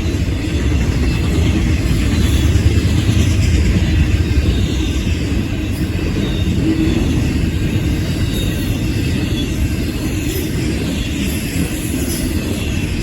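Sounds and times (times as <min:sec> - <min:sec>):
freight train rumbling: 0:00.0 - 0:13.0
high wheel squeals: 0:00.0 - 0:13.0.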